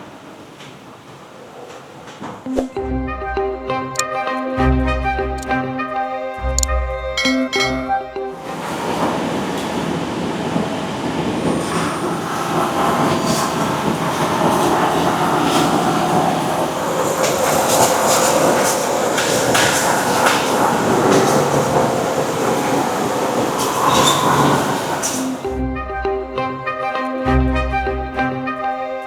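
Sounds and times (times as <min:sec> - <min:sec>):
machinery clicks and knocks: 0:08.4 - 0:25.5.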